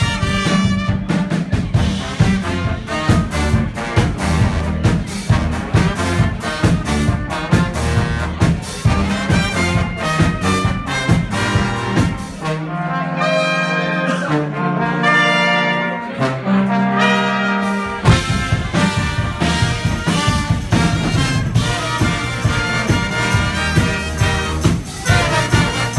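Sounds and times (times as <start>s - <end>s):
brass band playing: 0.0s - 25.9s
percussion beat: 18.0s - 25.9s.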